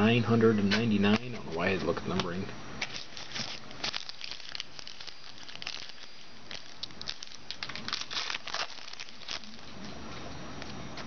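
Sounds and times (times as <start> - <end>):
card wrapper crinkling: 2.8 - 9.8.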